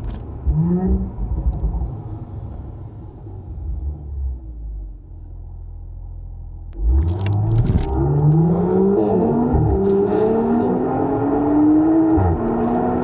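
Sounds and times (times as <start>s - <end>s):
exhaust cracks: 6.8s - 8.5s
car engine accelerating hard: 6.8s - 13.0s.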